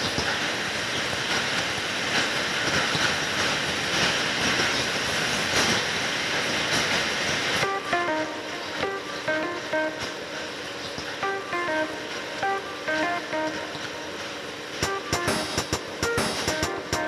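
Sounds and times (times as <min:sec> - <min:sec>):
rushing ambient noise: 0:03.2 - 0:17.0
plucked guitar melody: 0:07.6 - 0:10.5, 0:11.2 - 0:14.2, 0:14.8 - 0:17.0.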